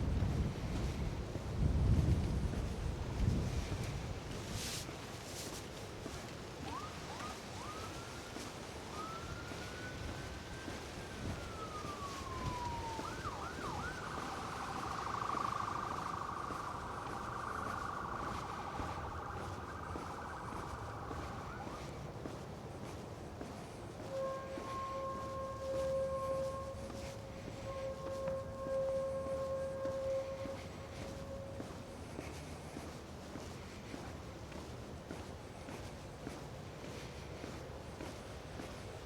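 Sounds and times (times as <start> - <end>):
electronic siren: 6.6 - 22.9, 23.7 - 33.0.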